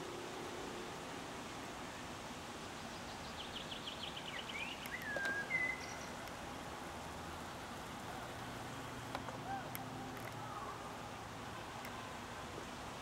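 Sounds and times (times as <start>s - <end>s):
background hiss: 0.0s - 13.0s
bird calling: 3.4s - 6.2s, 8.1s - 11.0s.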